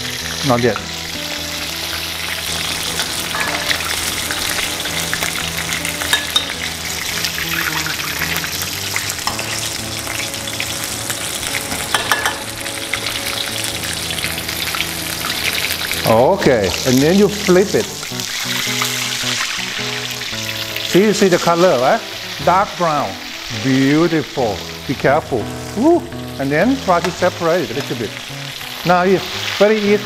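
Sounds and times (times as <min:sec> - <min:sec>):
chicken frying in hot oil: 0:00.0 - 0:30.0.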